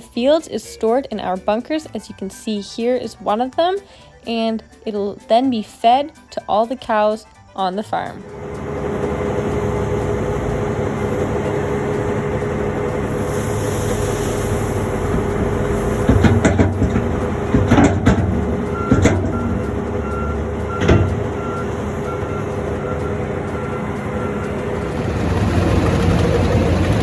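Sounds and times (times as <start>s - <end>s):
heavy vehicle engine running: 8.0s - 27.0s
clunks and rattles: 14.2s - 27.0s
reversing alarm beeping: 17.0s - 25.4s.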